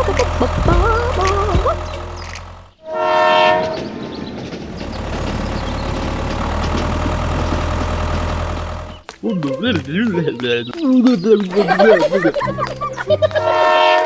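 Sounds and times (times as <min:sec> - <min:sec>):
train rumbling: 0:00.0 - 0:14.0
train horn: 0:02.8 - 0:04.1, 0:13.4 - 0:14.0.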